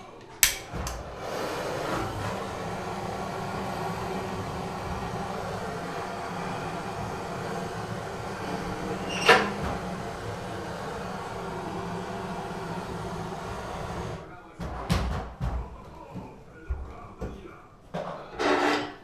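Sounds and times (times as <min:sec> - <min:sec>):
metallic latch click: 0:00.3 - 0:01.0
wood fire rushing: 0:00.4 - 0:14.3.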